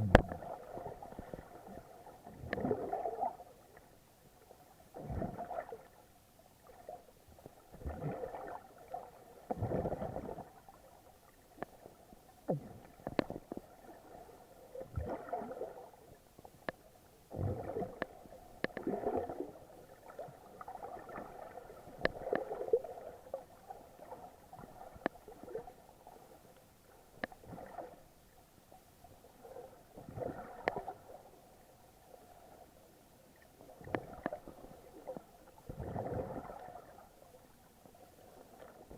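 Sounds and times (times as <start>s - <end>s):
muffled underwater gurgling: 0.0s - 1.8s.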